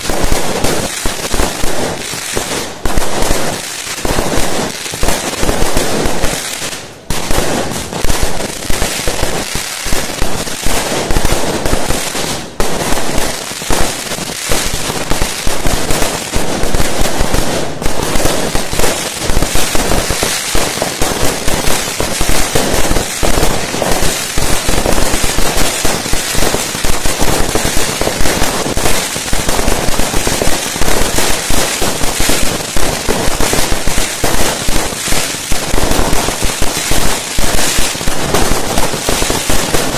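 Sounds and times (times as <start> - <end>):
fireworks rapid bangs: 0.0 - 39.9.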